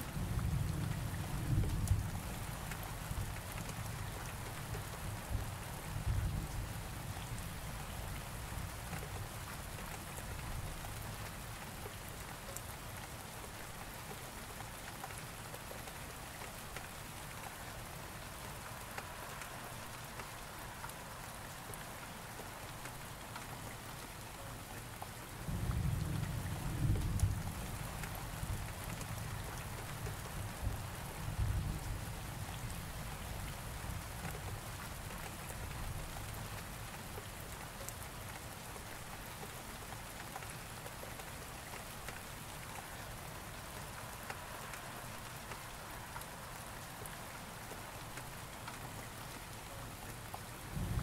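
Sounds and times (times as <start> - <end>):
steady rain falling: 0.0 - 51.0
low thunder rumble: 50.8 - 51.0.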